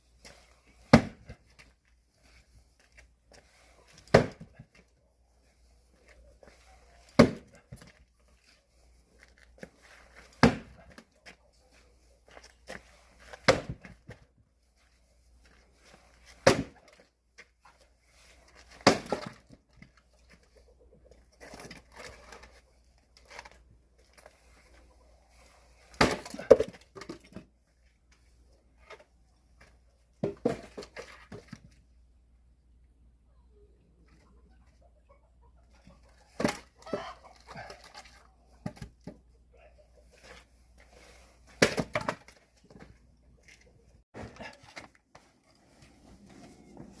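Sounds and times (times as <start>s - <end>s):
axe splitting firewood: 0.7s - 1.6s, 3.3s - 4.8s, 7.0s - 8.0s, 9.5s - 11.1s, 12.7s - 14.2s, 16.0s - 17.1s, 18.5s - 19.6s, 25.8s - 27.5s, 30.2s - 31.5s, 36.3s - 39.2s, 41.5s - 42.9s.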